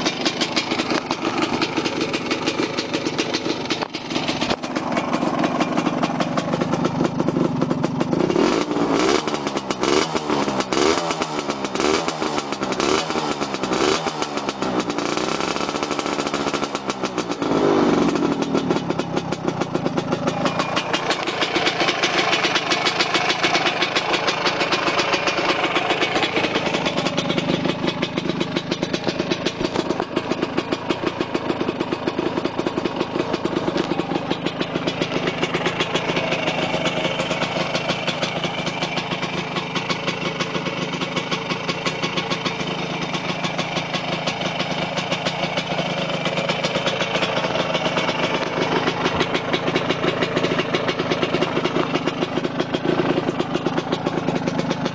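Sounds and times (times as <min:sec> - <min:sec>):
two-stroke engine idling: 0:00.0 - 0:54.9.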